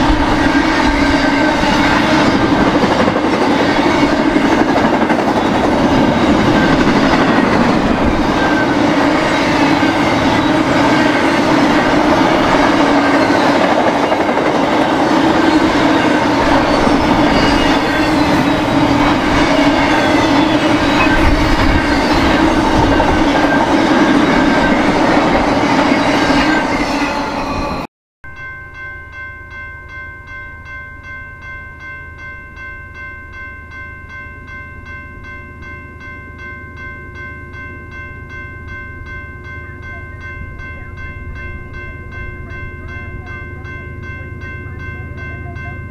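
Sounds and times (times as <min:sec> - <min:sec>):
train wheels rumbling on rail: 0:00.0 - 0:27.9.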